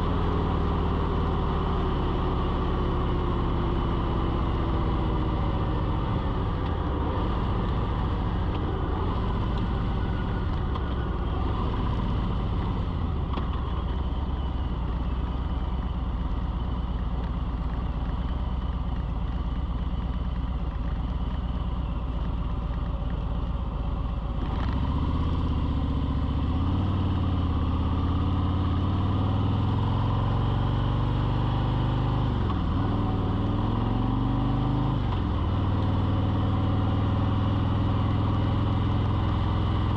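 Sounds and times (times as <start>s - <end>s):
engine running: 0.0s - 35.9s.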